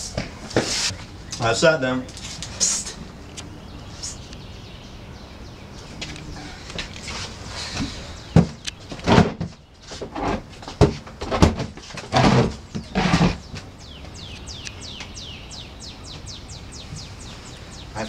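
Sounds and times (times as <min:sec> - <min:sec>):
bird chirping: 0:00.3 - 0:10.0, 0:12.6 - 0:18.0
rustles and knocks: 0:06.0 - 0:13.7.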